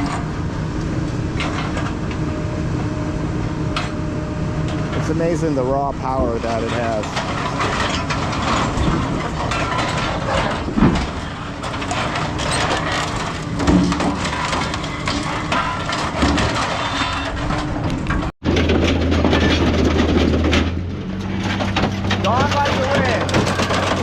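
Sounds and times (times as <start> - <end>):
scrap metal crunching and clanging: 0.0 - 2.9, 3.7 - 24.0
metallic squeals: 6.2 - 17.8.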